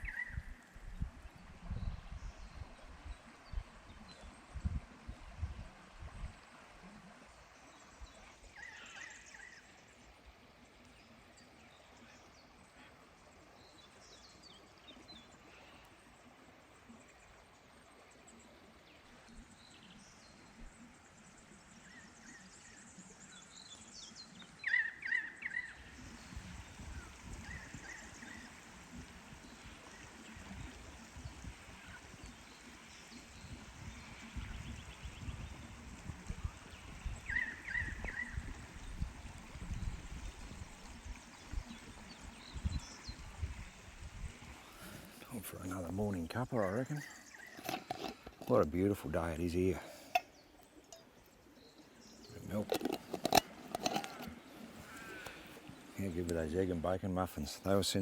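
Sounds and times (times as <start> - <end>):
birds calling: 0.0 - 0.7, 10.7 - 58.0
stream rushing: 52.2 - 58.0.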